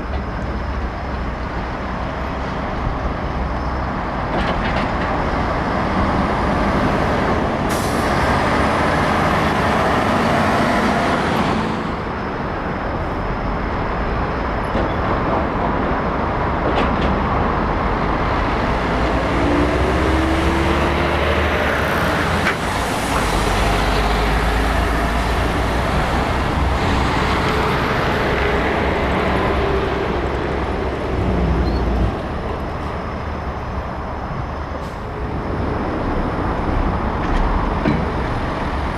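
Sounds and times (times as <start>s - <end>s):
diesel trucks passing: 0.0s - 38.9s
air brakes hissing: 7.7s - 8.3s, 34.7s - 35.3s.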